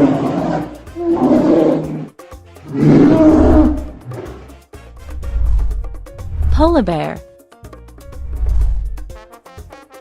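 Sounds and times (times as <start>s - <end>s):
polar bear growling: 0.0s - 2.1s, 2.7s - 5.9s
background music: 0.0s - 10.0s.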